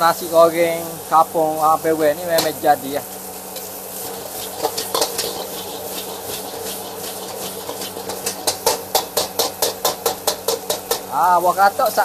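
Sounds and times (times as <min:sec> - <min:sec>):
rice sizzling in a wok: 0:00.0 - 0:12.0
spatula scraping and tapping: 0:04.4 - 0:11.1.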